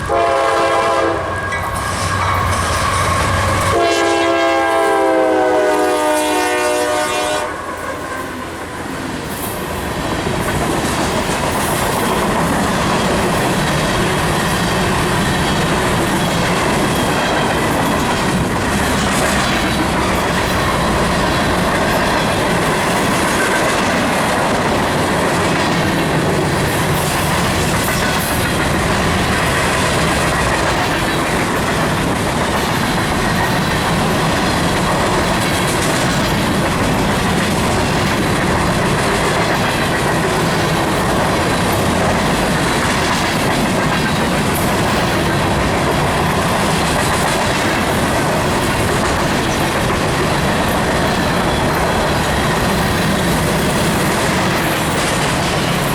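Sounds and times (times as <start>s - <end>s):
steel wheels rushing on rail: 0.0s - 55.9s
wheels clacking over rail joints: 8.9s - 55.9s.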